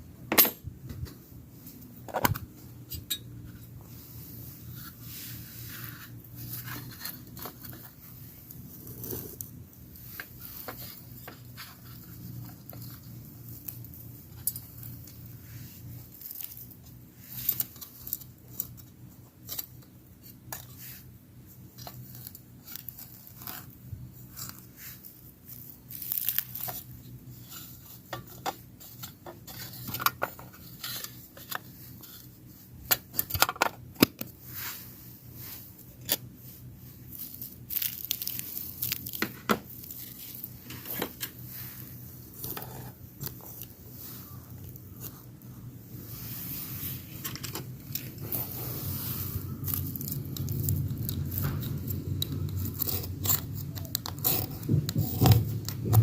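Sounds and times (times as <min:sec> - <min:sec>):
faint low hum: 0:00.0 - 0:56.0
tearing or rustling: 0:21.8 - 0:28.1, 0:34.4 - 0:56.0.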